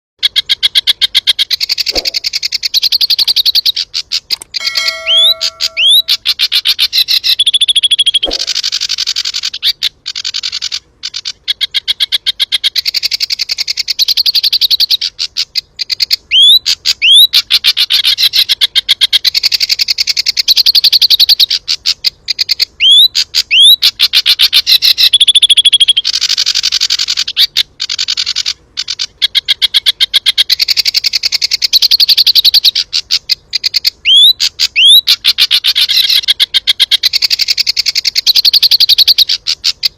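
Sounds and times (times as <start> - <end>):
songbird trilling: 0.2 - 39.9
bird whistled slurs: 1.8 - 2.4, 4.6 - 6.3.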